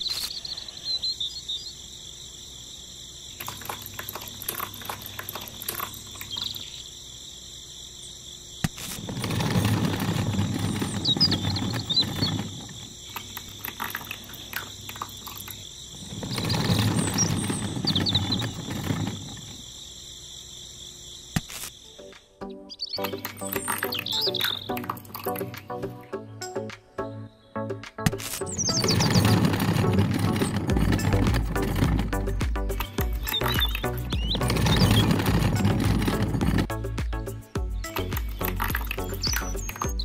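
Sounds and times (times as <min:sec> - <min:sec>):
crickets chirring: 0:00.0 - 0:40.0
small metal parts clicking: 0:03.4 - 0:06.7, 0:08.8 - 0:19.5, 0:23.0 - 0:25.6, 0:37.8 - 0:39.9
wet concrete pouring: 0:09.0 - 0:19.4, 0:28.6 - 0:36.7.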